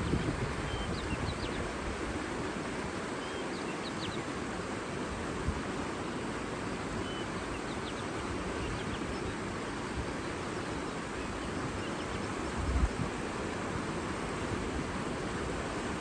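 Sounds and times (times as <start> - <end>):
water rushing: 0.0 - 16.0
faint bird chirps: 0.2 - 1.6, 7.0 - 9.4.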